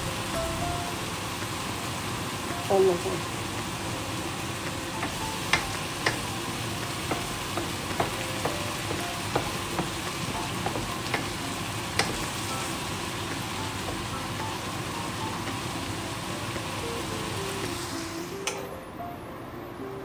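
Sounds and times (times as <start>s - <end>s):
food sizzling in a frying pan: 0.0s - 18.7s
wooden spatula knocking pan: 5.0s - 12.4s, 13.2s - 14.4s.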